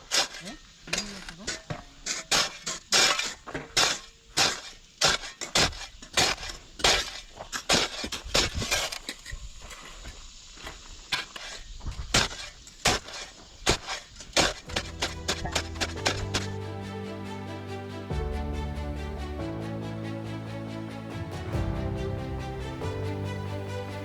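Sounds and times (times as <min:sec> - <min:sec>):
hand tools scraping dirt and gravel: 0:00.0 - 0:09.1, 0:11.1 - 0:16.6
background music: 0:14.7 - 0:24.0.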